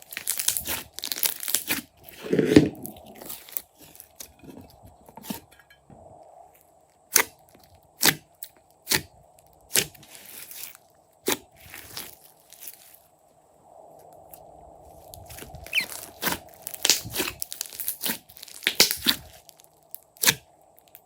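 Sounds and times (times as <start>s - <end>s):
slime popping and crackling: 0.0s - 1.9s, 15.3s - 20.3s.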